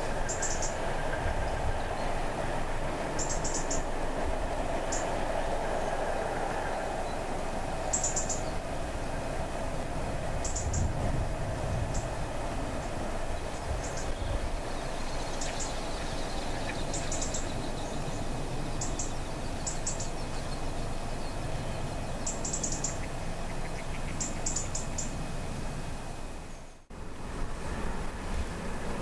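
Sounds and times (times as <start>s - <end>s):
steady low rumble: 0.0s - 29.0s
small bird chirping: 13.8s - 25.2s.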